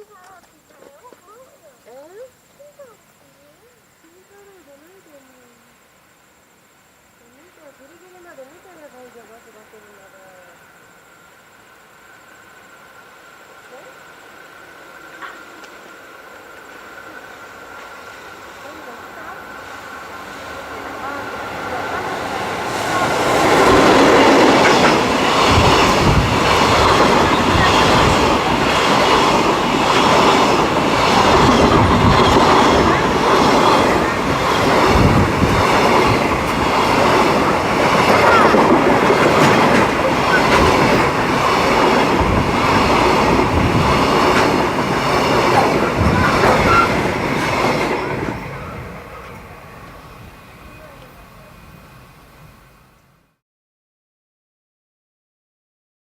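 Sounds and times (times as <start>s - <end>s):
freight train rolling past: 0.0s - 53.3s
wheels clacking over rail joints: 17.7s - 50.0s.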